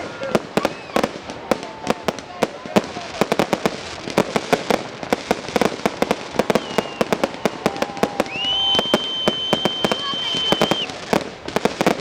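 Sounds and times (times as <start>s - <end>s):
fireworks bangs and pops: 0.0s - 12.0s
high whistle: 6.3s - 11.0s.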